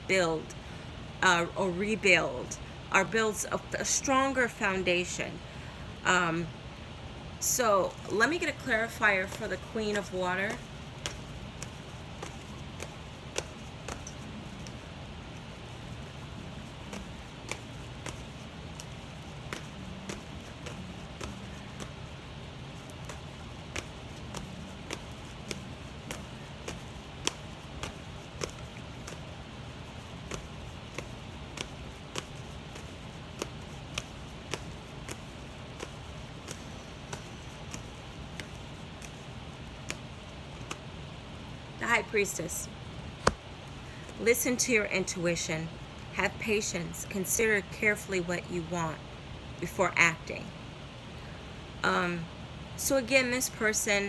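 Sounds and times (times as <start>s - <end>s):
low background hiss: 0.0s - 54.0s
cards being shuffled: 7.9s - 41.4s.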